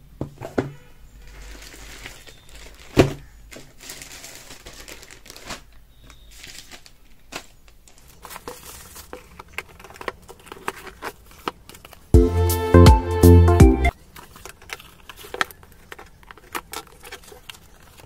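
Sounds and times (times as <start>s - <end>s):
packaging crinkling and rustling: 0.4s - 12.2s, 13.9s - 18.0s.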